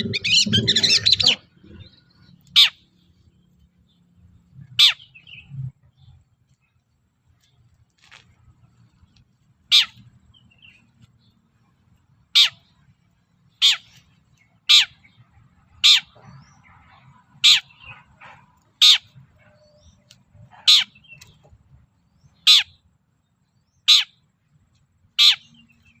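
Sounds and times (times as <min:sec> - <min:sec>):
bird giving harsh calls: 0:00.0 - 0:02.9, 0:04.6 - 0:05.6, 0:09.6 - 0:10.0, 0:12.3 - 0:12.8, 0:13.5 - 0:15.2, 0:15.8 - 0:16.2, 0:17.4 - 0:19.2, 0:19.8 - 0:21.4, 0:22.4 - 0:22.8, 0:23.8 - 0:24.2, 0:25.1 - 0:25.9.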